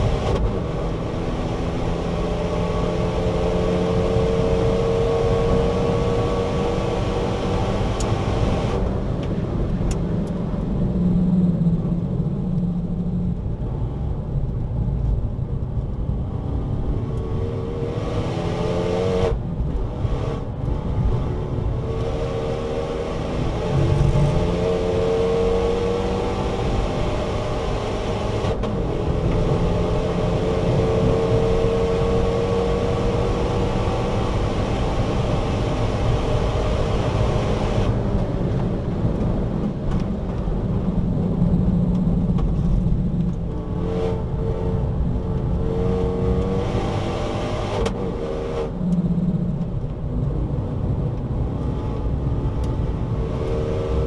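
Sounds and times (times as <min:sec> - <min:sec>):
car engine revving: 0:00.0 - 0:08.8, 0:16.6 - 0:38.0, 0:42.6 - 0:54.0.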